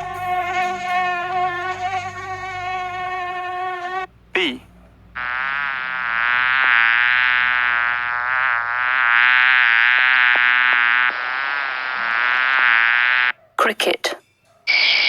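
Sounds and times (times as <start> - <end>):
bee buzzing in flight: 0.0 - 4.1.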